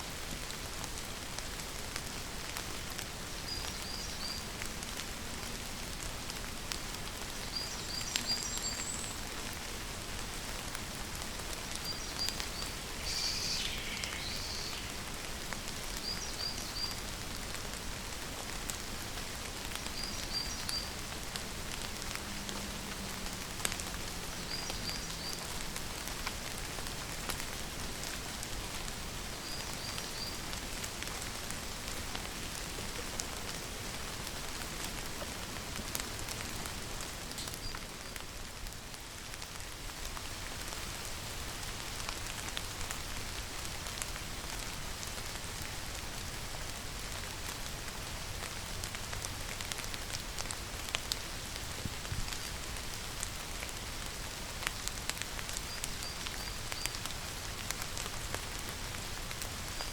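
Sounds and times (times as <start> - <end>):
steady rain falling: 0.0 - 59.9
bird chirping: 11.9 - 15.0.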